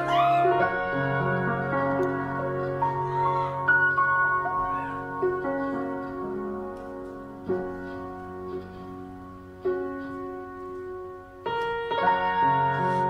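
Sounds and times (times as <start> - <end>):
piano ballad chords: 0.0 - 13.0.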